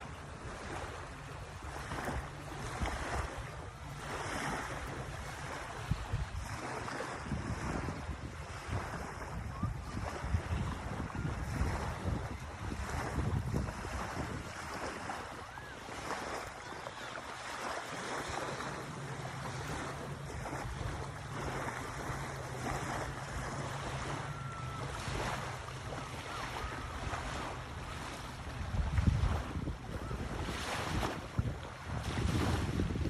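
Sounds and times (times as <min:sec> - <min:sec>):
waves washing on a beach: 0:00.0 - 0:33.0
wind buffeting microphone: 0:00.0 - 0:33.0.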